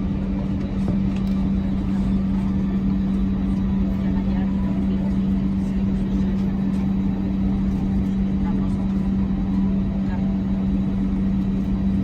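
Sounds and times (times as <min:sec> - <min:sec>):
aircraft cabin hum: 0:00.0 - 0:12.0.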